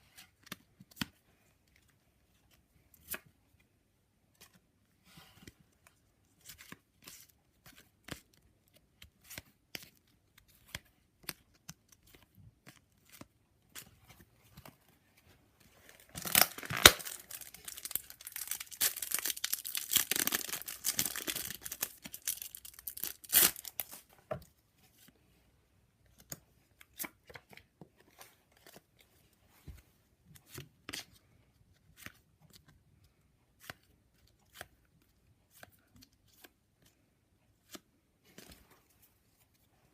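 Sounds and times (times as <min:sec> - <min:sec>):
card wrapper tearing and crinkling: 0:15.9 - 0:24.1.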